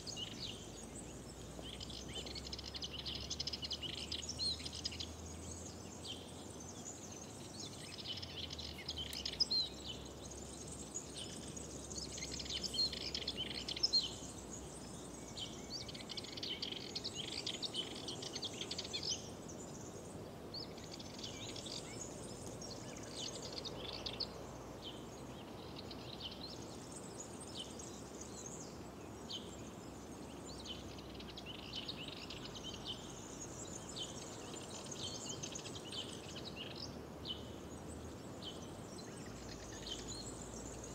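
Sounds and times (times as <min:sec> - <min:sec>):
low background hiss: 0:00.0 - 0:40.9
songbirds singing: 0:00.0 - 0:40.9.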